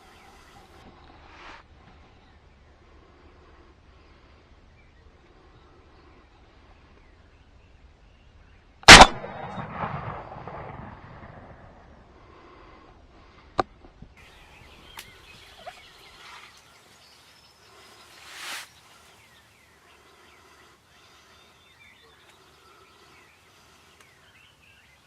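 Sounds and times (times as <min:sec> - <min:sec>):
shotgun shot: 0:08.9 - 0:11.8.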